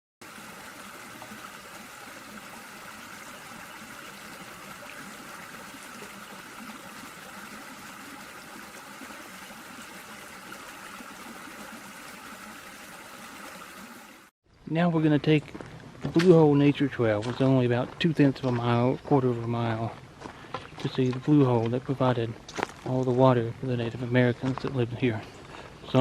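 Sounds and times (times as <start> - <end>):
stream water rushing: 0.2 - 14.3.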